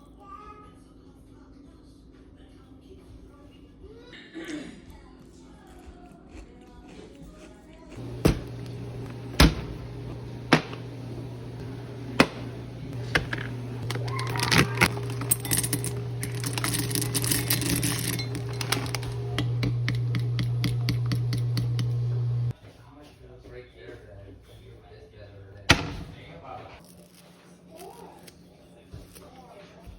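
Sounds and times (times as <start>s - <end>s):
kitchen appliance humming: 8.0s - 22.6s
utensils and glassware clinking: 11.6s - 21.7s.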